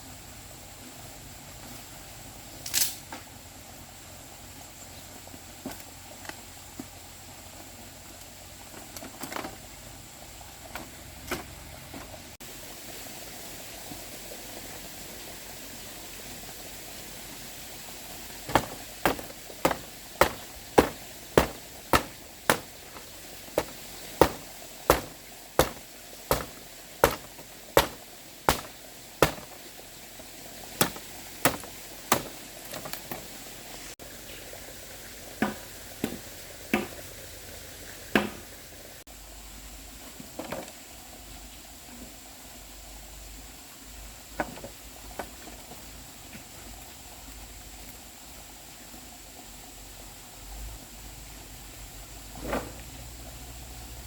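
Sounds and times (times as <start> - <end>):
light knocks: 18.5 - 29.6, 30.8 - 33.1
hand tool striking blows: 18.5 - 29.7, 30.8 - 33.1.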